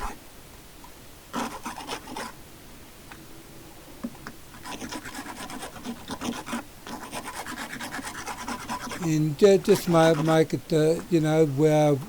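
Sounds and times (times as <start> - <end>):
wood rasp filing: 1.4 - 2.3, 4.6 - 11.0.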